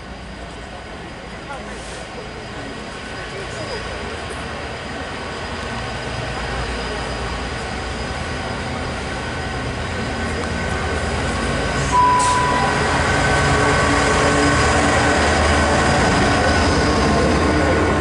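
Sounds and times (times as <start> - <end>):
diesel freight train passing: 0.0 - 18.0
brief high tone: 11.9 - 13.0.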